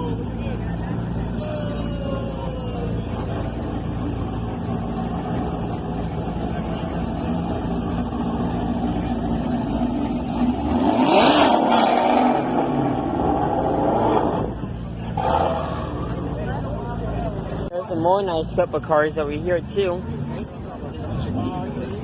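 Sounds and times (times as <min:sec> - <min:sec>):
car engine revving: 0:02.7 - 0:17.6.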